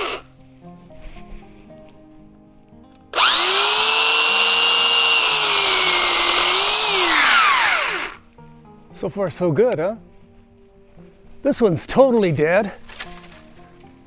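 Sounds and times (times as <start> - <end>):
electric chainsaw motor whine: 0.0 - 0.2, 3.1 - 8.2.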